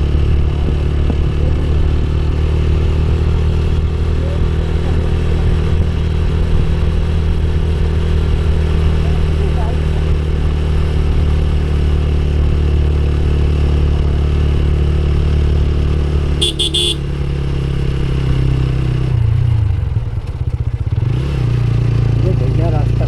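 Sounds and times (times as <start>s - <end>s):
motorcycle engine running: 0.0s - 23.0s
horn beep: 16.4s - 17.1s.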